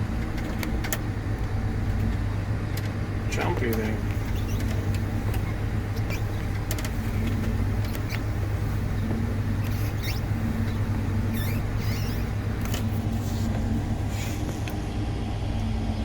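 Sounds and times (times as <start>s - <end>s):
farm machine engine running: 0.0s - 16.0s
short high squeaks and clicks: 4.1s - 6.4s, 7.8s - 8.3s, 9.6s - 13.5s.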